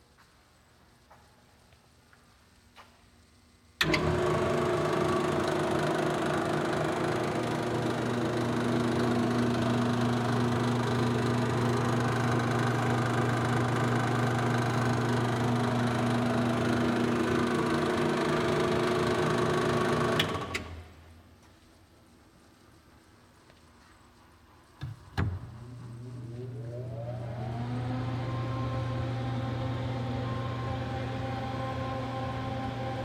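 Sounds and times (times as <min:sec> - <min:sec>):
brake lathe motor hum: 0:03.8 - 0:20.8.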